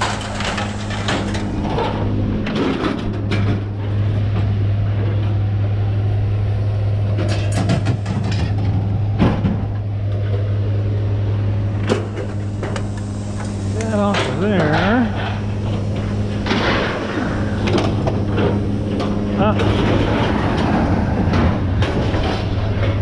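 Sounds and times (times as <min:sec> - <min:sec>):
engine humming: 0:00.0 - 0:23.0
knocks and clatters: 0:07.1 - 0:10.4, 0:14.1 - 0:23.0.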